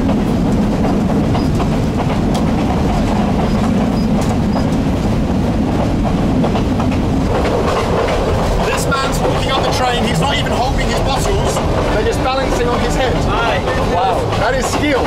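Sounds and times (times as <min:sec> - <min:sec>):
train wheels rumbling on track: 0:00.0 - 0:15.0
faint clicks and rattles: 0:06.5 - 0:15.0.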